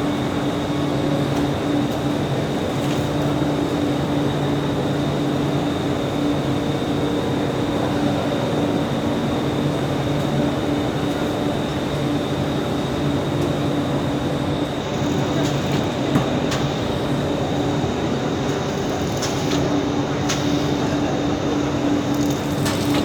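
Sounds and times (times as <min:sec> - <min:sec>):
shrink-wrapping machine hum: 0:14.7 - 0:23.0.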